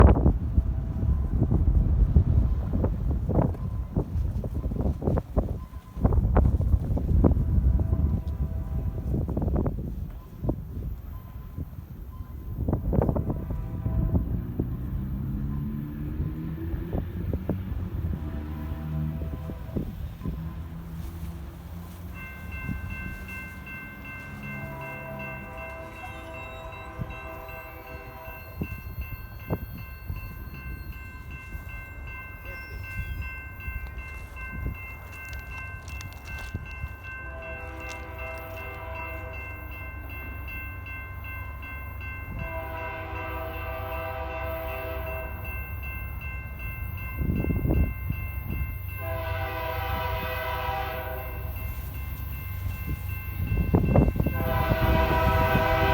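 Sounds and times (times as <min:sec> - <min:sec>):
diesel train rumble: 0:00.0 - 0:55.9
locomotive air horn blasts: 0:07.2 - 0:09.3, 0:12.9 - 0:14.8, 0:18.0 - 0:20.0, 0:24.2 - 0:29.0, 0:37.2 - 0:39.6, 0:42.3 - 0:45.4, 0:49.0 - 0:51.9, 0:53.8 - 0:55.9.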